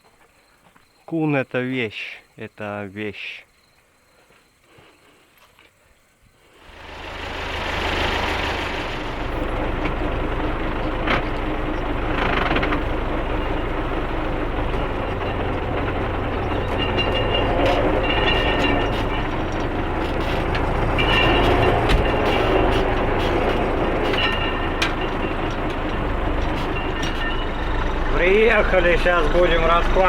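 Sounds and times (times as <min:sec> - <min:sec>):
tractor engine running: 0:06.6 - 0:30.0
field roller knocking and rattling: 0:06.7 - 0:30.0.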